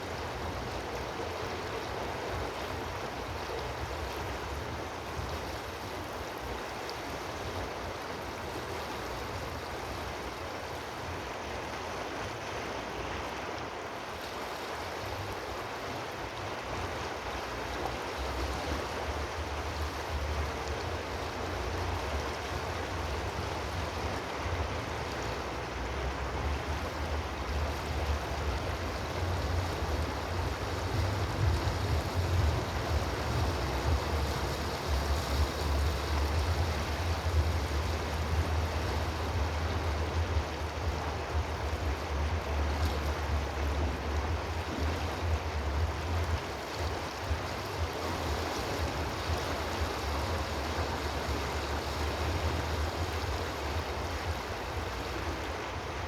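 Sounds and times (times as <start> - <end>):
running water rushing: 0.0 - 56.0
deep rumble: 26.1 - 46.4.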